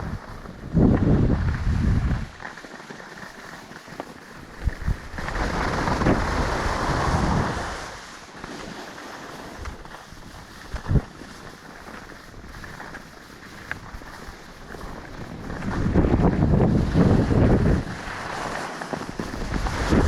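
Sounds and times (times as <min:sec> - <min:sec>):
wind buffeting microphone: 0:00.0 - 0:02.4, 0:04.5 - 0:08.0, 0:09.6 - 0:12.9, 0:13.5 - 0:20.0.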